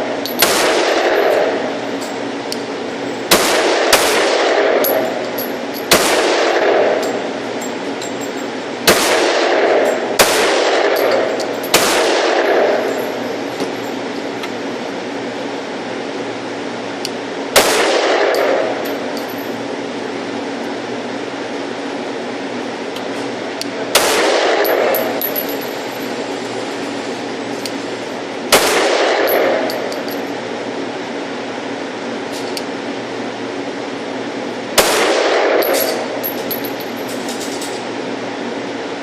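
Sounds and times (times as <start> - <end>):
steady background noise: 0.0 - 39.0
pistol shots with ringing echo: 0.3 - 1.7, 3.3 - 7.3, 8.8 - 13.2, 17.5 - 19.1, 23.9 - 25.9, 28.5 - 30.2, 34.8 - 36.8.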